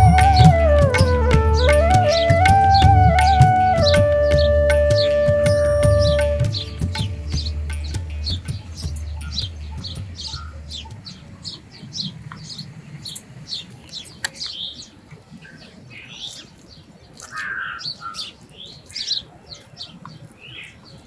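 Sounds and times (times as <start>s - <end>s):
small birds chirping: 5.9s - 21.0s.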